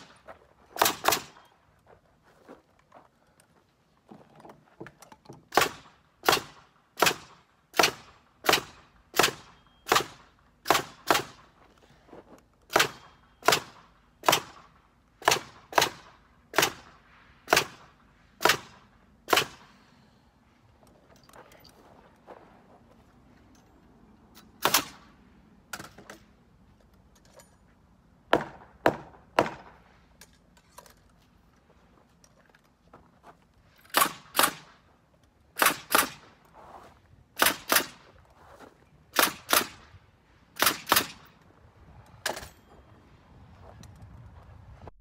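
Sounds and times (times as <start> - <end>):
nail gun firing into wood: 0.8 - 1.4, 5.5 - 11.4, 12.7 - 16.9, 17.5 - 17.8, 18.4 - 19.6, 24.6 - 25.0, 28.3 - 29.8, 33.9 - 34.7, 37.4 - 38.0, 40.6 - 41.3.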